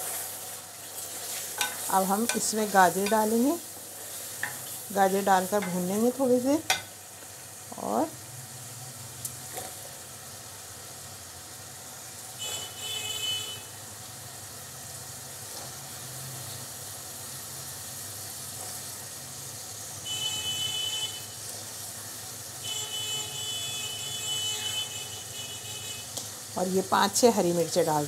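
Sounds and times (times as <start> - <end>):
meat sizzling in oil: 0.0 - 28.0
high tonal horn-like sound: 12.4 - 13.8, 20.0 - 21.4, 22.6 - 26.1.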